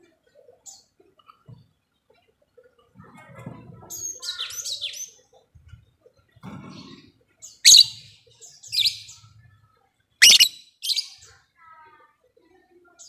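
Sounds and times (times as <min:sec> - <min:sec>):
bird chirping: 0:07.6 - 0:08.1, 0:08.7 - 0:09.2, 0:10.2 - 0:11.2.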